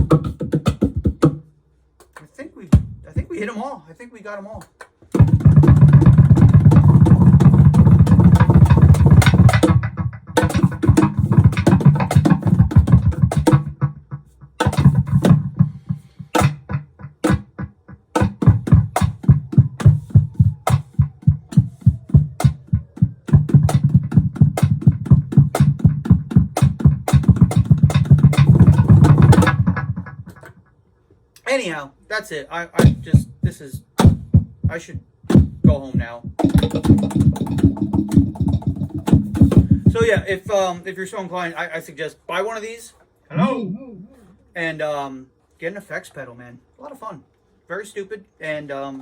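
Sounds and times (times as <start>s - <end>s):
cajon hits: 0.0s - 1.4s, 2.0s - 3.3s, 4.8s - 30.7s, 32.8s - 40.6s.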